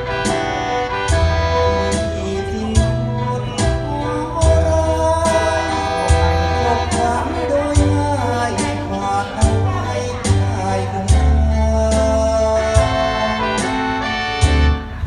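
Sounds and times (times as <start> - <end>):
backing instruments with bass and beat: 0.0 - 15.0
person singing: 1.7 - 14.2.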